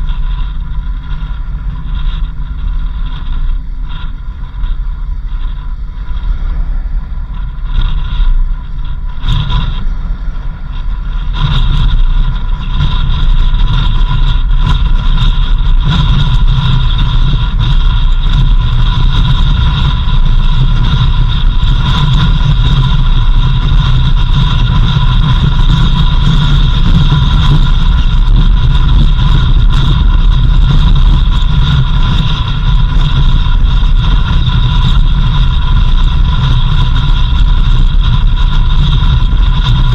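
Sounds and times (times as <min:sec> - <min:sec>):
engine and road rumble: 0:00.0 - 0:39.9
vehicle whine: 0:00.0 - 0:39.9.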